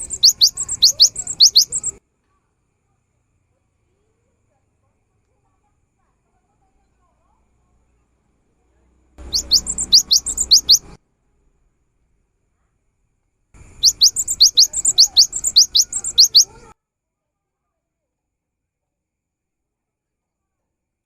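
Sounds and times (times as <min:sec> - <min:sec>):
bird singing high notes: 0:00.0 - 0:02.0, 0:09.2 - 0:11.0, 0:13.7 - 0:16.7.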